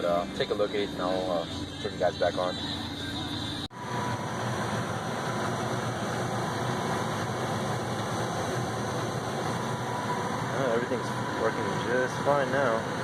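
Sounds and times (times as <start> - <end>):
gas furnace humming: 3.6 - 13.0.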